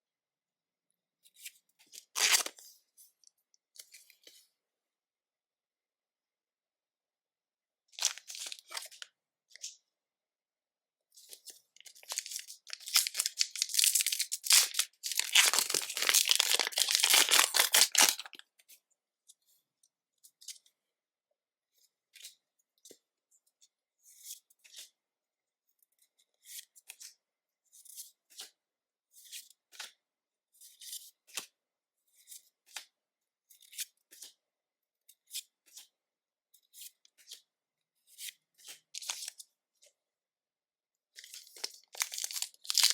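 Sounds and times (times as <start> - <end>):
card packaging tearing and crinkling: 2.2 - 2.5, 12.0 - 18.4, 41.6 - 42.9.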